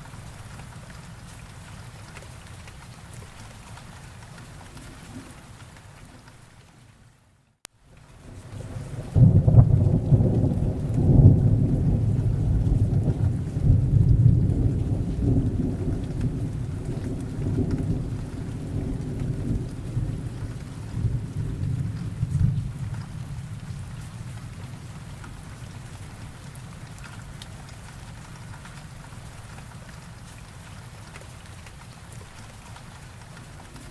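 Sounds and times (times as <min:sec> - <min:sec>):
rain falling steadily: 0:00.0 - 0:33.9
rolling thunder: 0:08.3 - 0:25.2.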